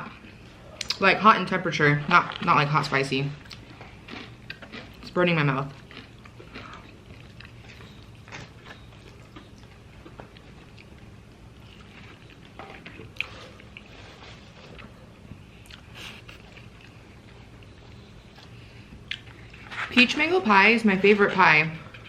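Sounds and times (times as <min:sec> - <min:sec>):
low steady hum: 0:00.0 - 0:22.0
chewing fried chicken: 0:03.4 - 0:20.0.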